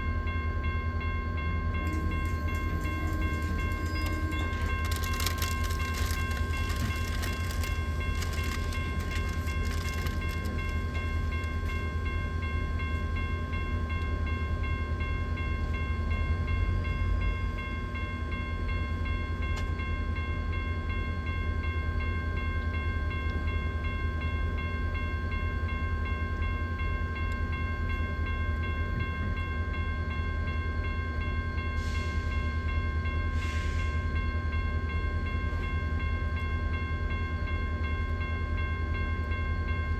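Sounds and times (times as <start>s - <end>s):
train rumbling past: 0.0s - 24.7s, 25.3s - 39.9s
rail clicks: 1.8s - 12.2s.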